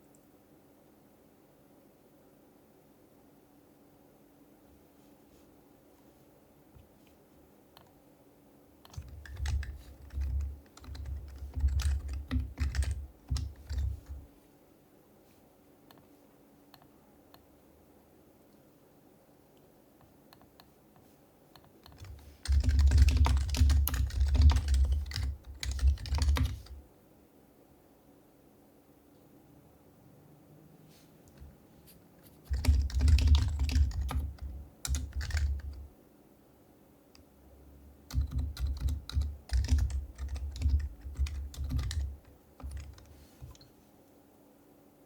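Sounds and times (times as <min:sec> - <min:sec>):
fast typing on keyboard: 0:08.9 - 0:14.3, 0:21.9 - 0:26.8, 0:32.3 - 0:35.9, 0:38.0 - 0:43.6.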